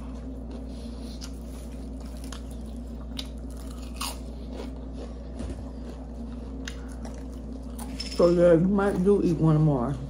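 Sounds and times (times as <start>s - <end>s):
wet chewing: 0.0s - 8.0s
low hum: 0.0s - 10.0s.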